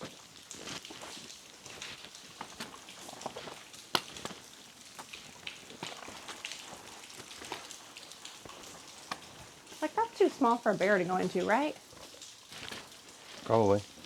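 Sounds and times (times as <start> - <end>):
water drops pattering: 0.0 - 14.0
falling water hiss: 5.7 - 14.0.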